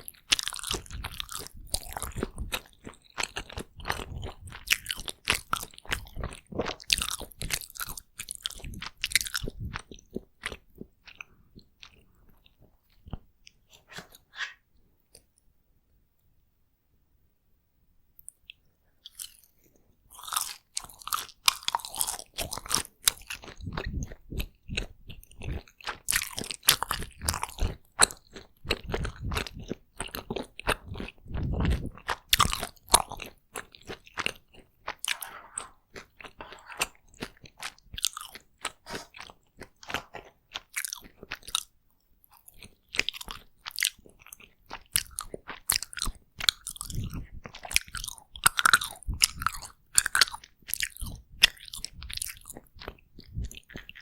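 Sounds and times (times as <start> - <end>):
close chewing and mouth clicks: 0.0 - 14.2, 18.2 - 54.0
chewing thuds: 28.8 - 41.6.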